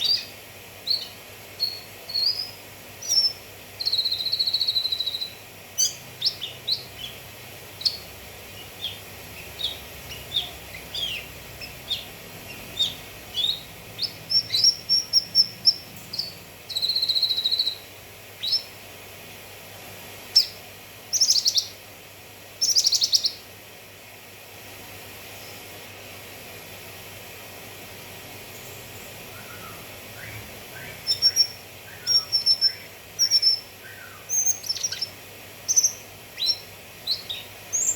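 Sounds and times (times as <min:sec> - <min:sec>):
bird chirps and whistled notes: 0:00.0 - 0:07.2, 0:08.6 - 0:18.7, 0:21.2 - 0:21.8, 0:22.6 - 0:23.4, 0:28.6 - 0:35.1, 0:35.7 - 0:37.9
buzzy bird trills: 0:00.0 - 0:18.8, 0:20.4 - 0:21.8, 0:22.6 - 0:23.4, 0:28.5 - 0:37.9
rapid trilled bird phrases: 0:00.0 - 0:18.9, 0:20.2 - 0:21.9, 0:22.5 - 0:23.5, 0:28.4 - 0:37.9.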